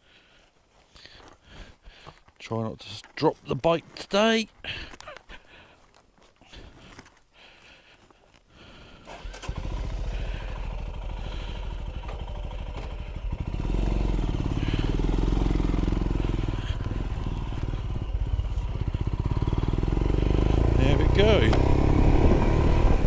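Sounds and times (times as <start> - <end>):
motorcycle engine starting and running: 8.7 - 23.0.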